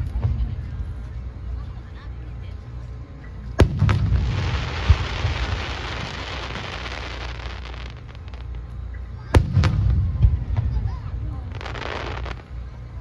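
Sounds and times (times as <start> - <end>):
low rumble: 0.0 - 13.0
fireworks sparks crackling: 3.6 - 12.6.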